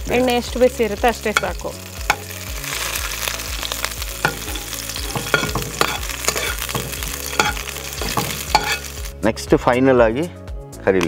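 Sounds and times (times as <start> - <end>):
chillies sizzling in oil: 0.0 - 9.3
oil popping: 1.3 - 9.1
metal ladle in wok: 1.4 - 9.1.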